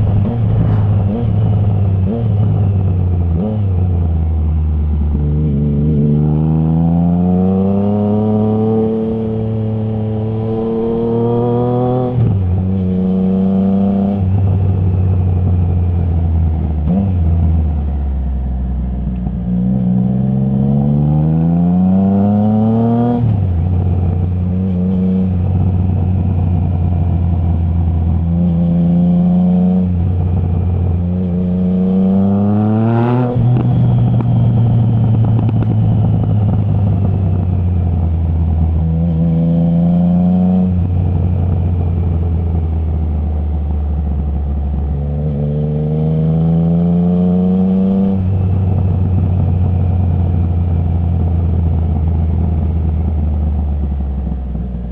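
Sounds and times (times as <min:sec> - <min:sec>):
exhaust crack: 0:00.0 - 0:03.5
motorcycle engine revving: 0:00.0 - 0:17.6, 0:19.4 - 0:54.6.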